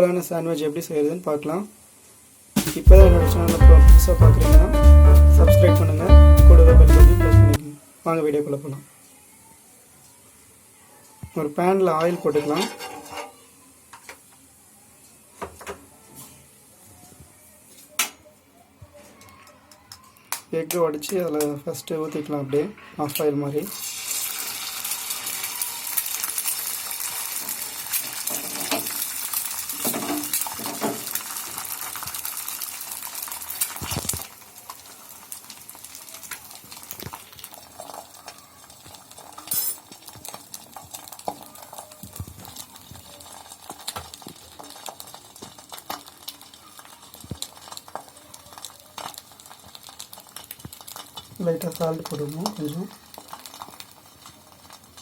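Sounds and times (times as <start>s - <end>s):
eggs sizzling in oil: 23.0s - 55.0s.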